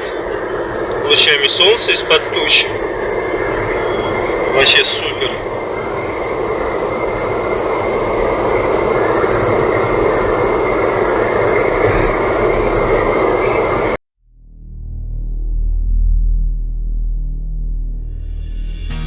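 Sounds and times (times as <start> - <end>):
low droning music: 14.2 - 19.0.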